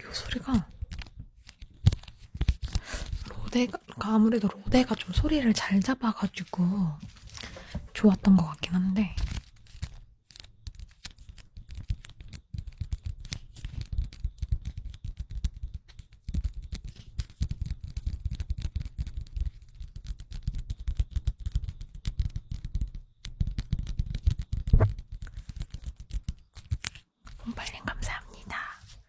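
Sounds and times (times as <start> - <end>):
brush scratching on microphone: 27.4 - 29.0.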